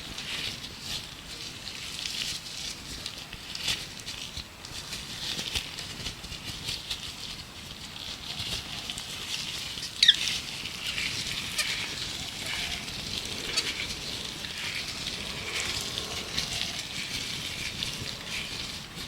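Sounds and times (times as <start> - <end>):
gloves rustling: 0.5 - 19.0
birds chirping: 11.0 - 18.9.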